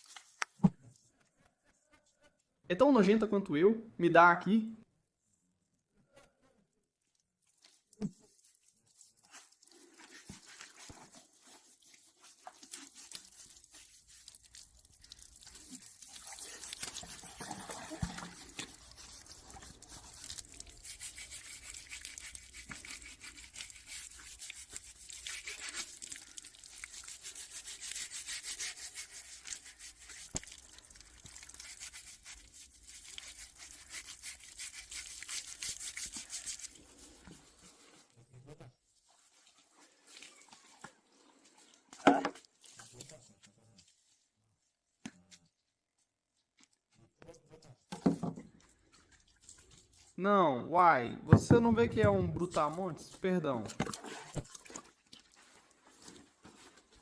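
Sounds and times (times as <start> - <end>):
rapid scraping strokes: 15.7 - 26.1.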